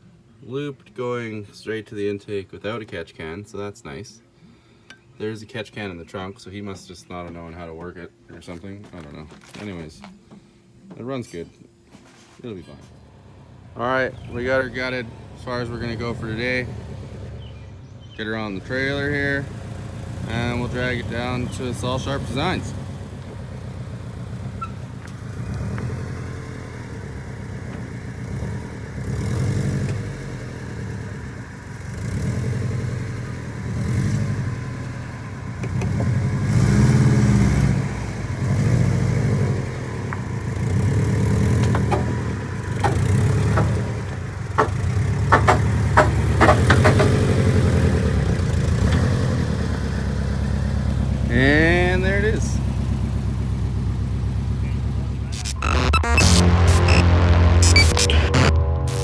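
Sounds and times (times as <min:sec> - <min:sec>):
vehicle engine revving: 0:12.9 - 0:59.0
sharp clicks or knocks: 0:41.5 - 0:47.4.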